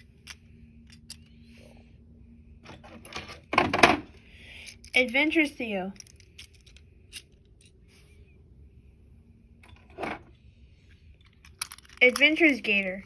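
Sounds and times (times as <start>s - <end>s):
toy trains clicking: 11.3s - 13.0s.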